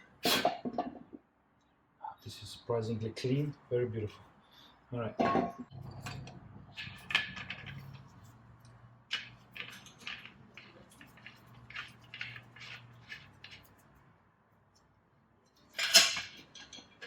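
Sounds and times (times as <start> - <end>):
metal parts and tools clicking: 5.3 - 14.0, 15.5 - 17.0.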